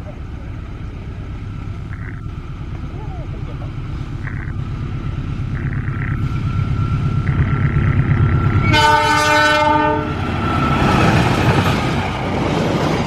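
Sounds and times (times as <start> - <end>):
locomotive engine rumble: 0.0 - 13.0
passenger coaches clattering past: 0.0 - 13.0
train horn chord: 8.6 - 10.2.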